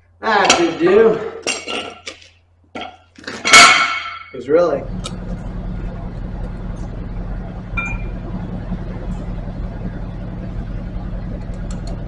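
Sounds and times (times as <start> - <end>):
engine idling: 4.6 - 12.0.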